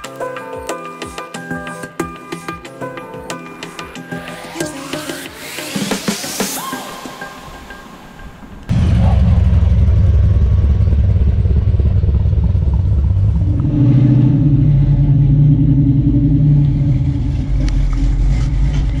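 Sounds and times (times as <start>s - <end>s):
loud car engine running: 8.7s - 19.0s.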